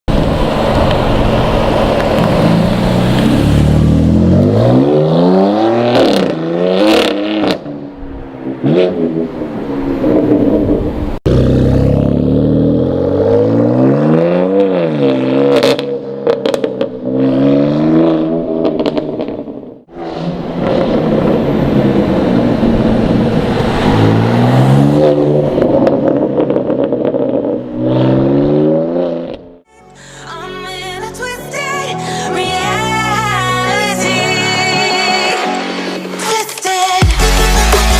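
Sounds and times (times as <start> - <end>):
car engine revving: 0.1 - 29.6.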